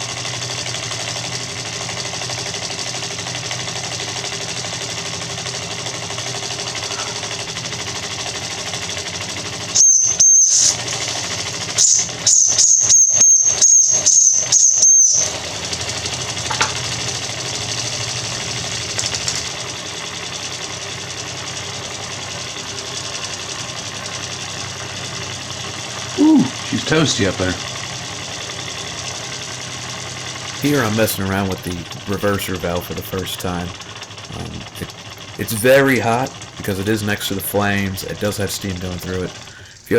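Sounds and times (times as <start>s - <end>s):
steam engine mechanical chatter: 0.0s - 39.9s
hissing steam bursts: 34.3s - 39.9s.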